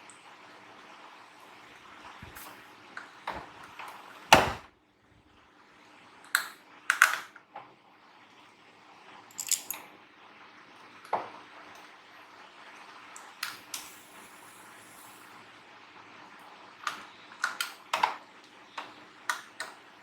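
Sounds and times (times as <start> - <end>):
tools clicking on workbench: 9.3 - 9.8.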